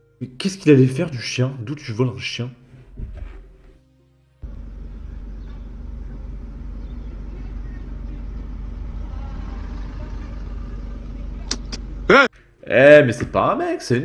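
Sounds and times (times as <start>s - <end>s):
car engine rumble inside cabin: 4.4s - 12.1s
faint street noise: 4.4s - 12.8s.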